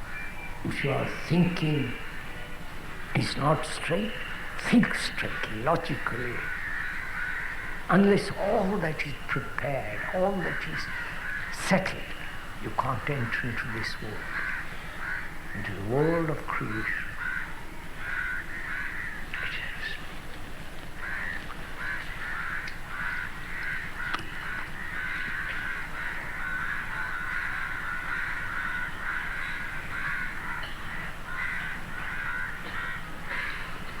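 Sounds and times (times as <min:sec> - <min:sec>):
crows cawing: 0:00.0 - 0:34.0.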